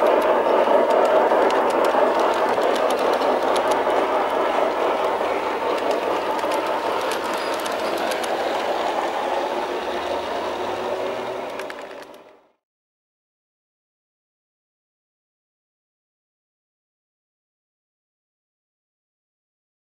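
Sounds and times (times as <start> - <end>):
wheels clicking over rail joints: 0.0 - 12.4
model train running on track: 0.0 - 12.6.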